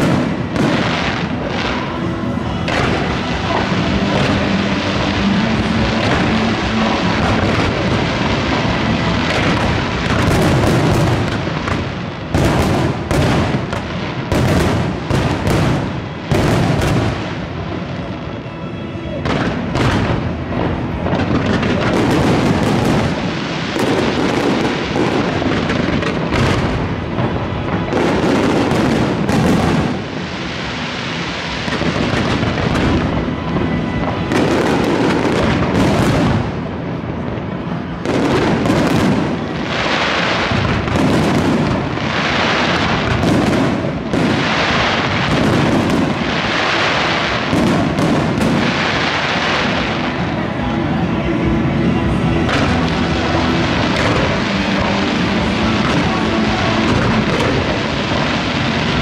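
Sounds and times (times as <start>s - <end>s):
firework crackling and hissing: 0.0s - 59.0s.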